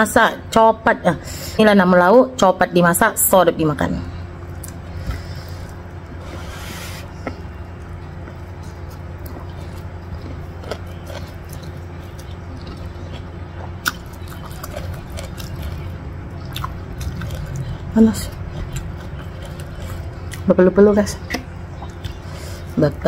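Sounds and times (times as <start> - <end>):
steady low hum: 0.0 - 23.0
soft chewing and mouth clicks: 7.2 - 20.5.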